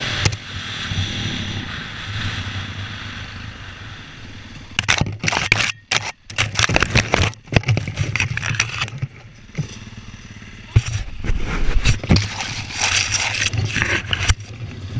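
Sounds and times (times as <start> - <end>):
dirt bike engine running: 0.0 - 14.9
scraping on microphone: 4.8 - 10.0, 10.6 - 14.9.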